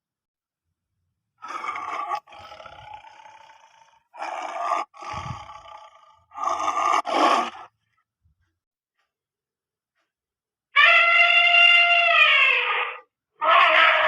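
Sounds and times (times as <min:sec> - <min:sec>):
wild animal roaring: 0:01.4 - 0:07.7.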